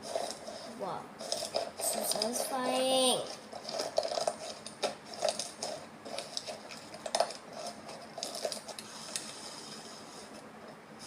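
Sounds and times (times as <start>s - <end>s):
slime clicking and crackling: 0.1s - 9.4s.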